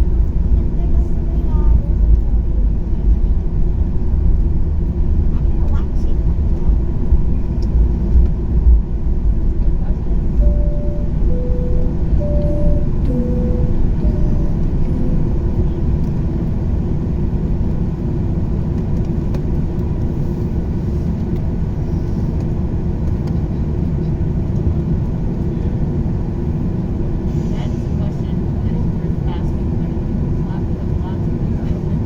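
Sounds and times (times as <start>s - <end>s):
airplane cabin engine rumble: 0.0s - 32.0s
alternating two-pitch tones: 10.4s - 15.7s.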